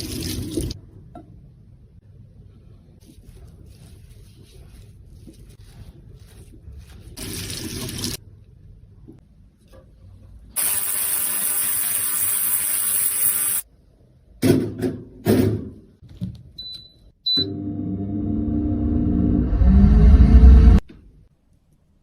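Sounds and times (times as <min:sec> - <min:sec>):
small electric motor running: 0:10.6 - 0:13.6.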